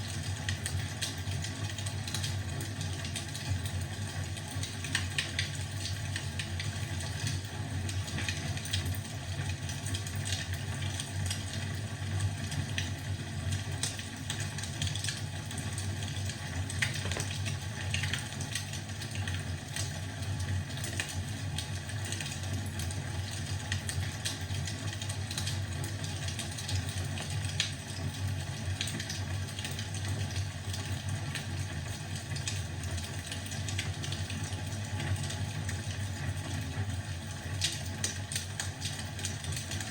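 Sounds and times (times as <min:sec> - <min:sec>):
wood fire crackling: 0:13.7 - 0:28.1.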